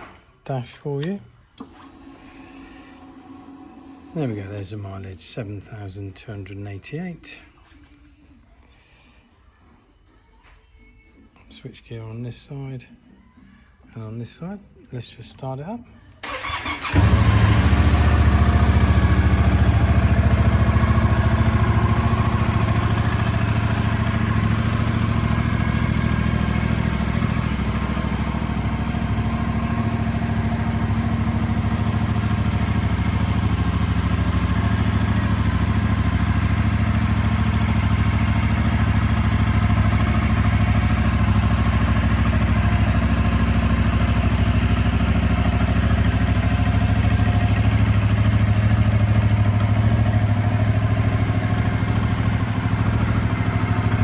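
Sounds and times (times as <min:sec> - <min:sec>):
motorcycle engine starting and idling: 0:01.4 - 0:04.8, 0:16.2 - 0:54.0.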